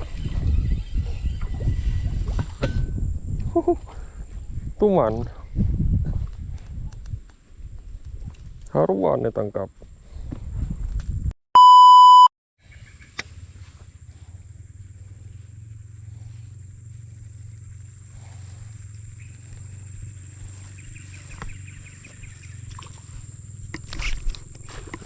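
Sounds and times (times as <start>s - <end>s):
loud electronic beep: 11.6s - 12.3s.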